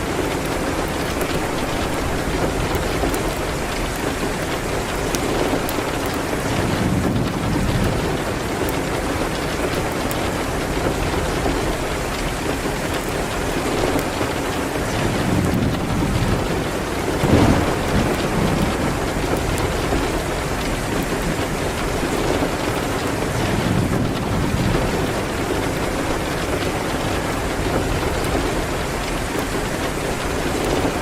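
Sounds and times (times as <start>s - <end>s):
heavy rain: 0.0s - 31.0s.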